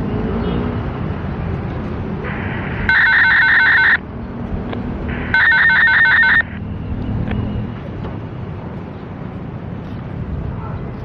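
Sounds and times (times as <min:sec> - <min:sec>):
traffic noise: 0:00.0 - 0:11.0
electronic bell ringing: 0:02.9 - 0:04.0, 0:05.3 - 0:06.5.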